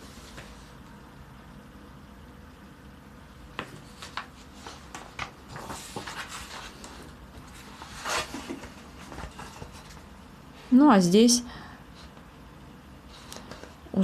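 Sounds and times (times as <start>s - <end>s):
paper pages rustling: 3.6s - 10.2s.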